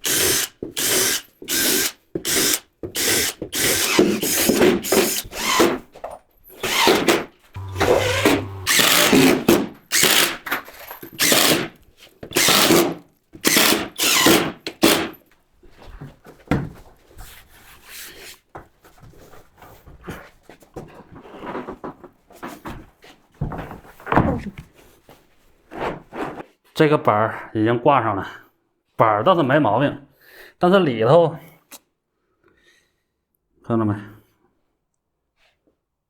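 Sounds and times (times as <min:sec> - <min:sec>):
power drill driving screws: 0:00.0 - 0:05.8, 0:06.6 - 0:11.8, 0:12.4 - 0:15.1.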